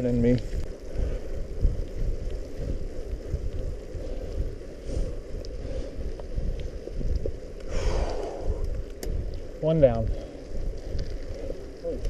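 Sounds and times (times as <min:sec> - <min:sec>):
bike tyre rumble on muddy trail: 0:00.0 - 0:12.0
wind buffeting microphone: 0:00.0 - 0:12.0
small clicks: 0:08.6 - 0:09.5.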